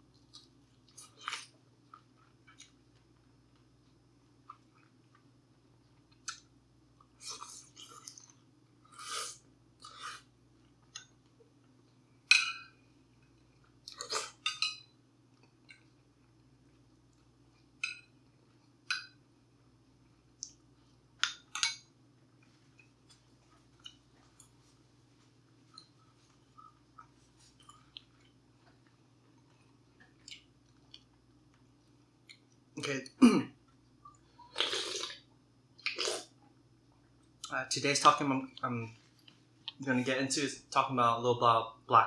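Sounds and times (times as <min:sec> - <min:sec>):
faint steady hum: 0:00.0 - 0:42.0
person chewing crunchy food: 0:34.1 - 0:35.2
wet mouth sounds: 0:34.4 - 0:35.2.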